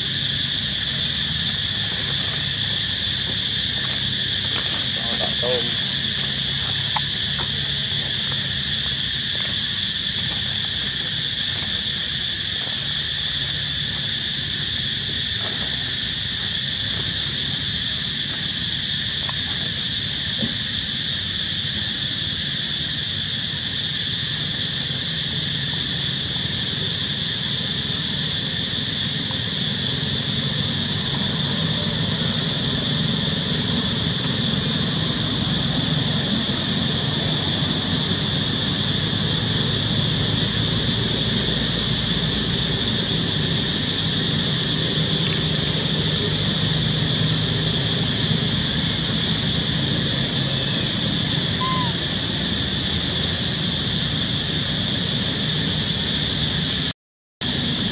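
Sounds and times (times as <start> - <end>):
high-pitched drone: 51.5 - 52.0.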